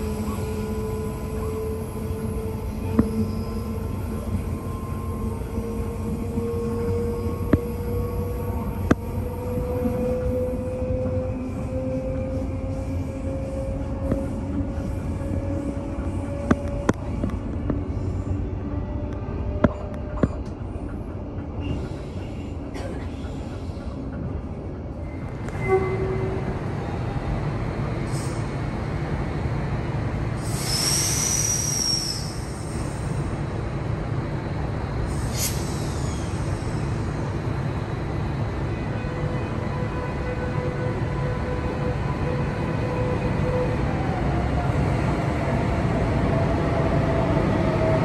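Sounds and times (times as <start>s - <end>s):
train low rumble: 0.0s - 48.0s
high wheel squeal: 30.5s - 32.7s.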